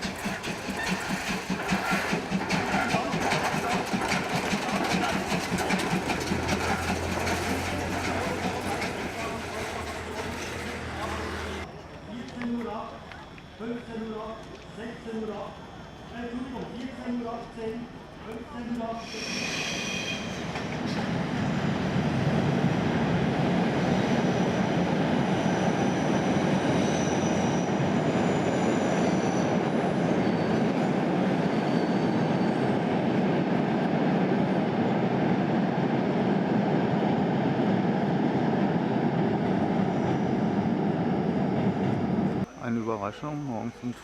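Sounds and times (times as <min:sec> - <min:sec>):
train rumbling on rails: 0:00.0 - 0:11.7, 0:12.9 - 0:42.6
high-pitched wheel squeals: 0:19.0 - 0:20.6, 0:25.3 - 0:32.8.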